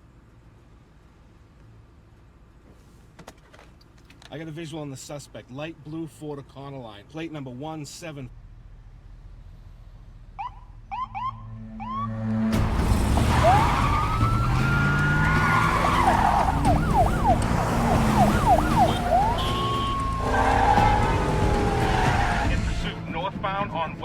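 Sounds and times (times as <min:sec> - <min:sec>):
road rumble: 0:00.0 - 0:24.0
loud car engine: 0:08.4 - 0:23.0
police siren wailing and yelping: 0:10.4 - 0:22.6.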